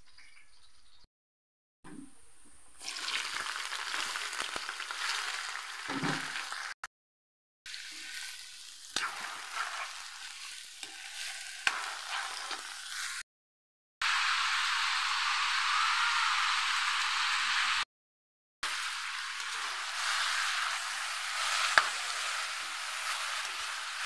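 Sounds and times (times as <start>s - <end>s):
vegetables sizzling in hot oil: 2.8s - 6.8s, 7.7s - 13.2s, 14.0s - 17.8s, 18.6s - 24.0s.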